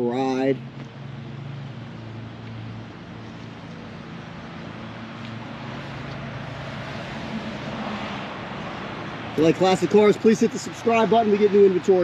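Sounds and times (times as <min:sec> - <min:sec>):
faint rushing noise: 0:03.9 - 0:10.9.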